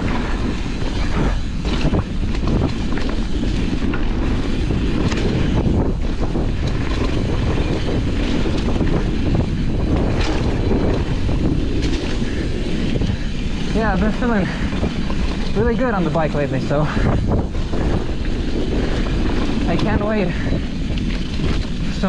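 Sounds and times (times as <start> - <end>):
bike knocks and clacks: 0.0 - 22.0
bike tyres rolling on dirt: 0.0 - 22.0
wind on microphone: 0.0 - 22.0.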